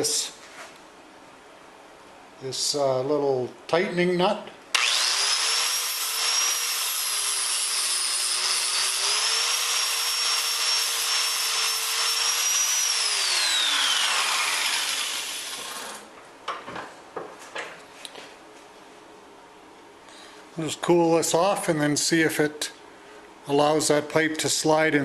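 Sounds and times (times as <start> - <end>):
angle grinder grinding metal: 4.8 - 16.1.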